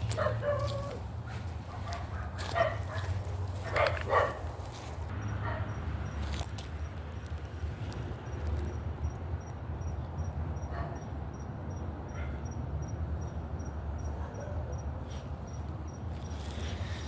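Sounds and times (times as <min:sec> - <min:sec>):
cricket chirping: 0:05.1 - 0:07.4, 0:08.1 - 0:17.0.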